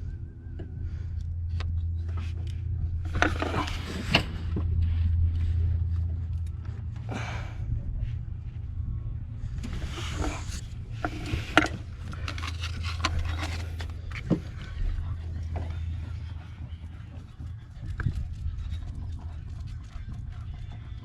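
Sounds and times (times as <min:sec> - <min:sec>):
low hum: 0:00.0 - 0:21.0
scrapes and rustles: 0:02.0 - 0:07.0, 0:09.4 - 0:21.0.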